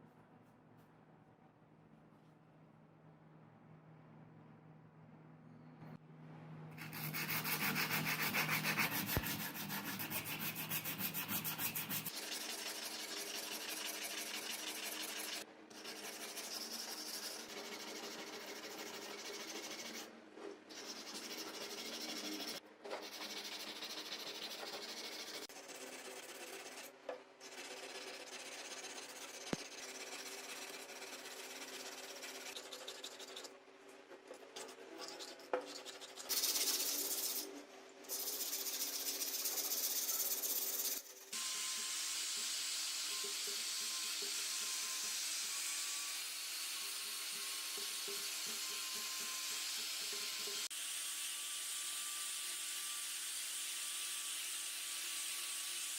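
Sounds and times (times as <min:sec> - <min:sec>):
abrasive sanding: 0:06.8 - 0:20.1, 0:20.7 - 0:33.5.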